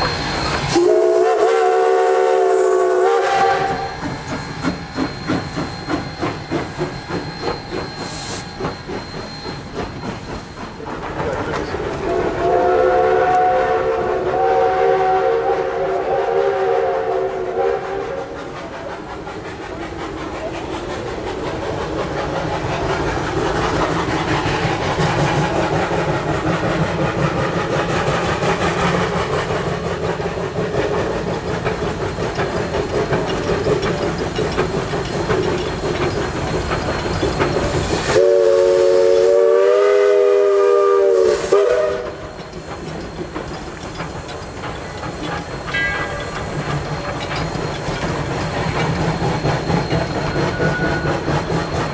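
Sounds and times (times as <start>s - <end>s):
steam whistle blast: 0.0s - 4.2s, 12.1s - 18.4s, 38.0s - 42.4s
steam hissing: 0.0s - 51.9s
steam train rail clatter: 0.0s - 51.9s.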